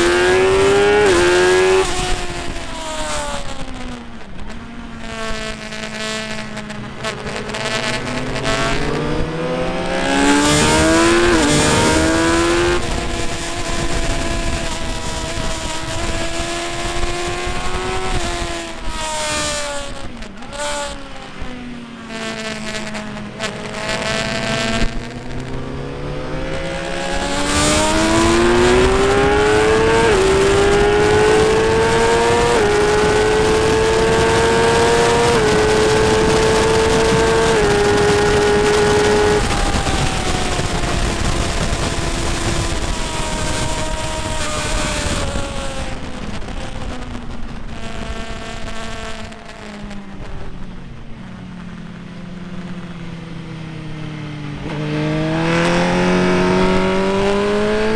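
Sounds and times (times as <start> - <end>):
motorcycle engine racing: 0.0 - 57.9
wind rushing: 24.2 - 48.4.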